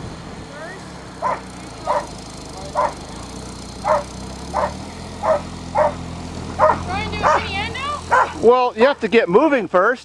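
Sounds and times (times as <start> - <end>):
small engine humming: 0.0 - 9.9
dog barking: 1.2 - 3.0, 3.8 - 6.0, 6.6 - 7.5, 8.1 - 8.4.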